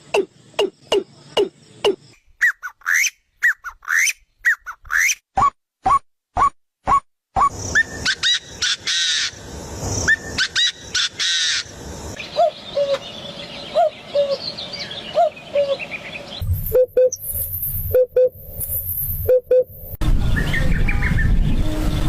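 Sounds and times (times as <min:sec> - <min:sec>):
birds calling: 0:00.0 - 0:05.2, 0:07.4 - 0:18.3.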